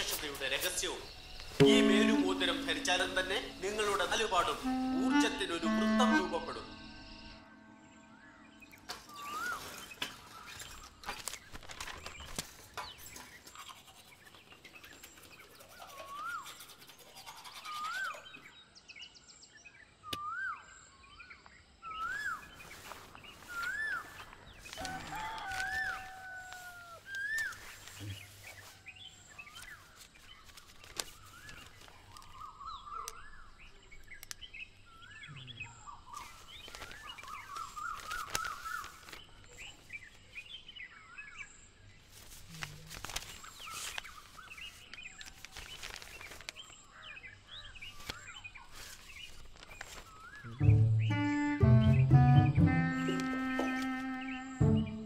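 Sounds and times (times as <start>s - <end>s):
bird chirps: 0.0s - 11.0s, 12.0s - 55.0s
bird whistled calls: 23.5s - 24.1s.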